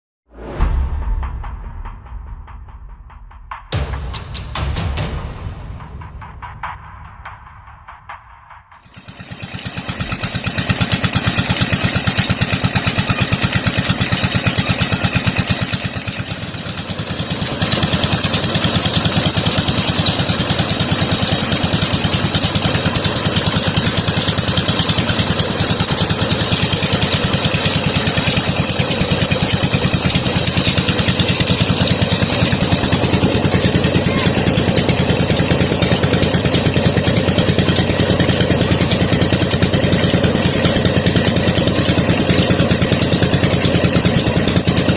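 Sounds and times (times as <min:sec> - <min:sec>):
diesel engine running: 0:06.4 - 0:44.9.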